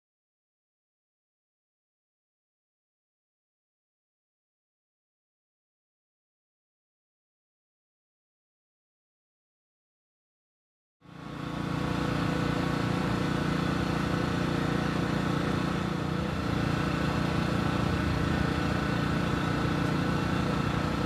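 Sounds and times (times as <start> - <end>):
engine running steadily: 11.1 - 21.0.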